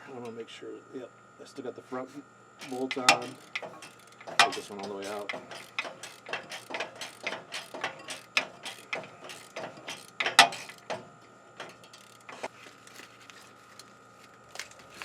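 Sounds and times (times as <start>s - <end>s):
ratchet wrench clicking: 2.6s - 11.0s, 11.6s - 12.5s.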